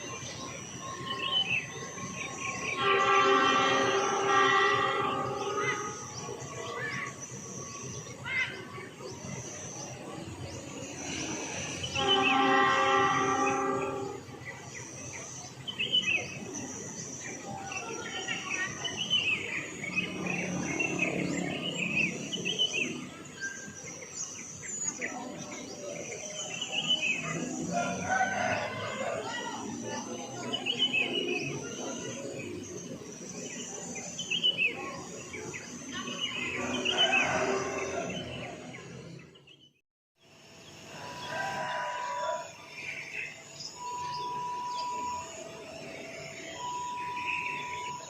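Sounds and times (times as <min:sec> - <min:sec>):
small birds chirping: 0:00.0 - 0:37.2
rooster crowing: 0:27.7 - 0:29.4, 0:36.6 - 0:38.4, 0:40.9 - 0:42.6
high-pitched hum: 0:40.9 - 0:48.0.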